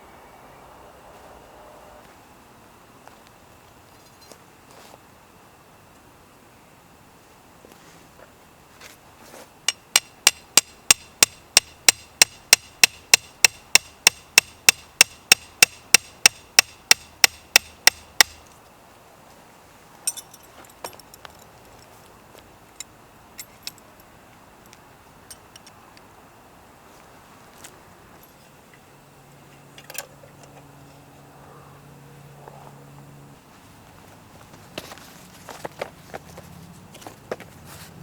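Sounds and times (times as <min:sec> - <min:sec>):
rapid ringing hammer strikes: 0:09.7 - 0:18.4
light knocks and clinks: 0:20.0 - 0:21.9.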